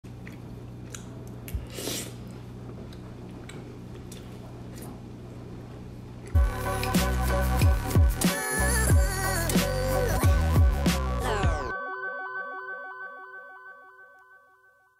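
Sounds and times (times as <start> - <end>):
music with heavy bass beat: 6.4 - 11.7.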